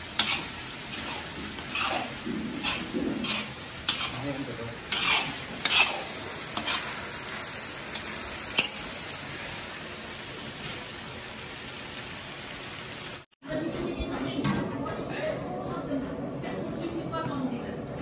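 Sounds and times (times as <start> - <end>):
metal ladle scraping a pan: 0.0 - 7.2
curry sizzling in a pan: 0.0 - 13.3.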